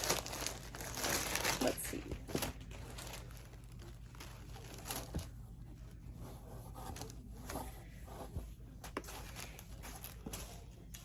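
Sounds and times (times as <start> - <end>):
shirt rustling from packaging: 0.0 - 6.0.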